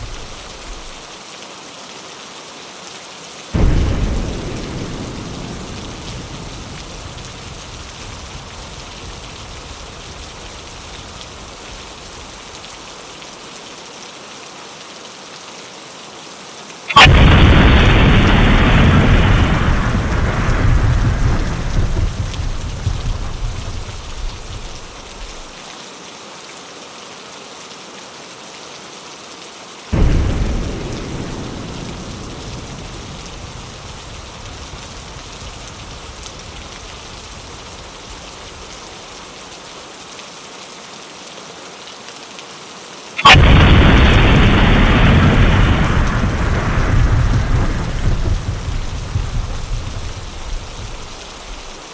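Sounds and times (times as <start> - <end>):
thunder claps rumbling: 0.0 - 1.0, 3.6 - 12.6, 17.0 - 25.6, 29.9 - 39.0, 43.2 - 51.8
rain on a window: 0.0 - 51.9.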